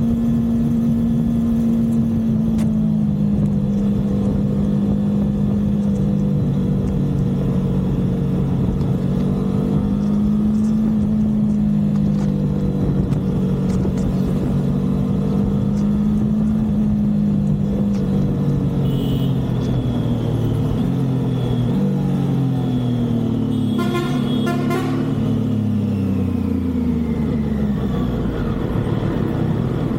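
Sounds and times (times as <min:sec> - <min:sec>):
motorcycle engine cruising: 0:00.0 - 0:29.9
wind and road noise: 0:00.0 - 0:29.9.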